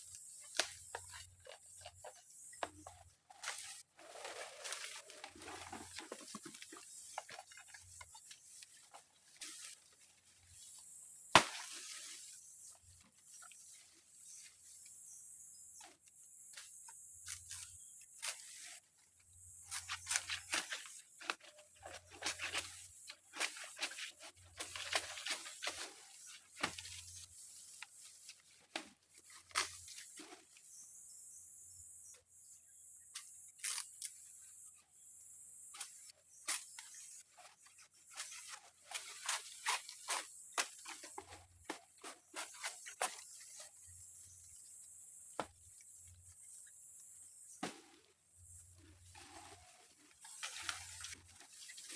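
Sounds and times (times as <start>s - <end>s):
crackles and rustles: 0.0s - 11.0s, 15.7s - 30.7s, 47.8s - 51.9s.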